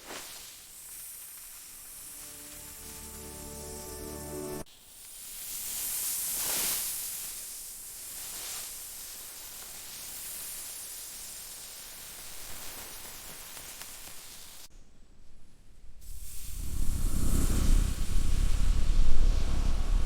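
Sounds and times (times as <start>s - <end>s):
hissing whooshing noise: 1.2s - 4.7s, 16.0s - 20.0s.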